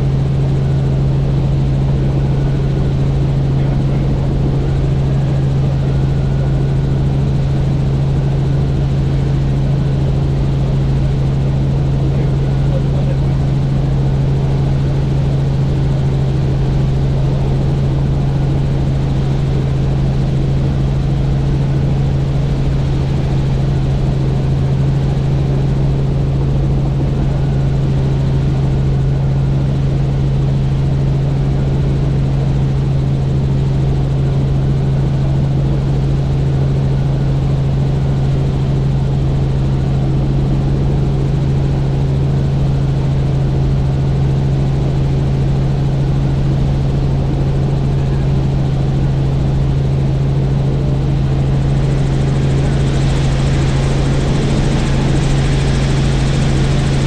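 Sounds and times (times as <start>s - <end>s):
helicopter rotor and engine hum: 0.0s - 57.0s.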